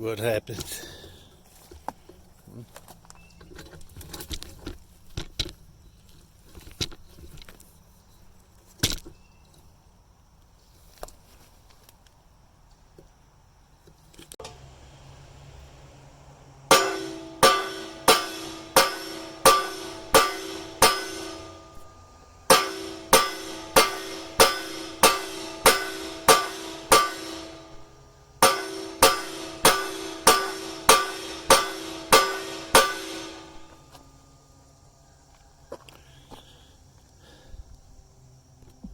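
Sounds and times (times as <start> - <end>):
hammer blows ringing on steel: 16.7 - 34.0.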